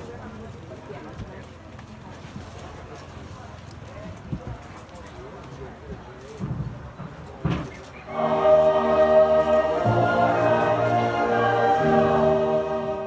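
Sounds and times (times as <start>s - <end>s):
choir singing held chords: 8.1s - 13.0s.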